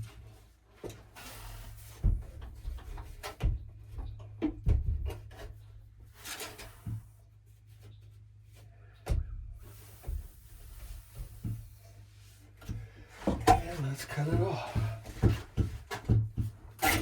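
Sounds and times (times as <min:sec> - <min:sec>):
pipe and tools knocking: 0:12.6 - 0:17.0.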